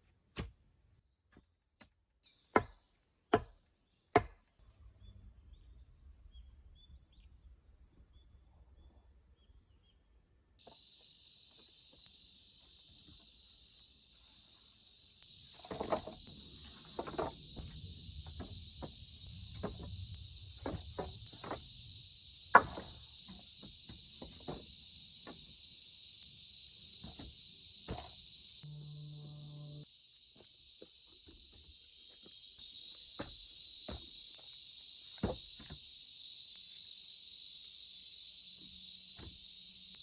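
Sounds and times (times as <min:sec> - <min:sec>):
high insect chorus: 0:10.6 - 0:40.0
knocks: 0:22.5 - 0:25.4.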